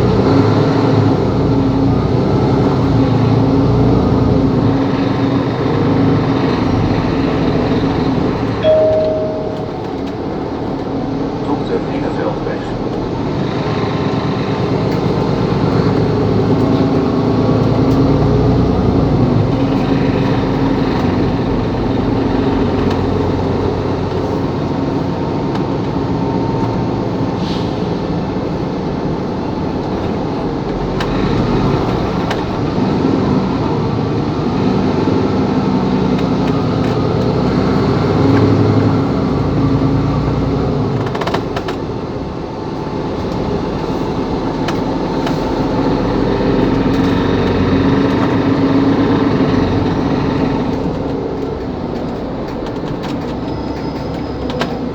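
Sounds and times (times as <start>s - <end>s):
bus diesel engine running: 0.0s - 54.9s
road and tyre noise: 0.0s - 54.9s.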